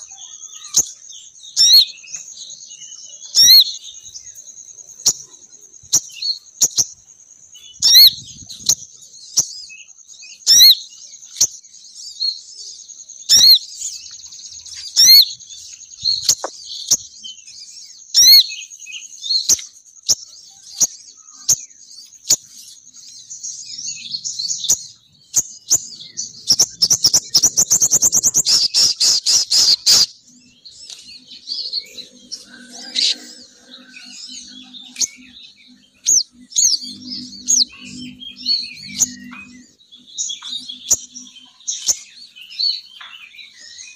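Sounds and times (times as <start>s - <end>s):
bird chirping: 0.0s - 43.9s
fast bird chattering: 16.2s - 17.0s, 25.7s - 30.1s.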